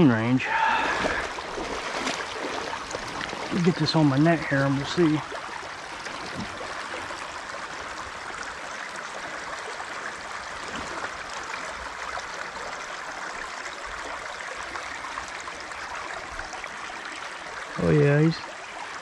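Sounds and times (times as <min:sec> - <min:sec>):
creek water flowing: 0:00.0 - 0:19.0.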